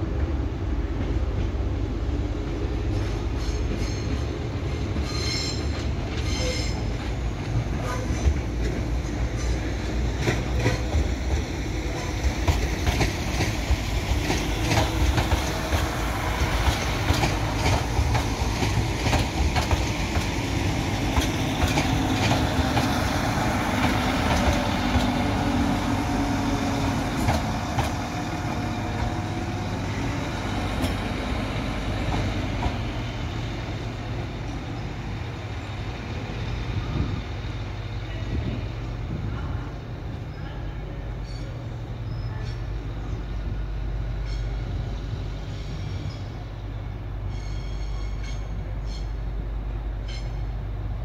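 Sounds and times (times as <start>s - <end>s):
diesel train engines running: 0.0s - 51.0s
train wheels clicking over rail joints: 2.9s - 34.8s.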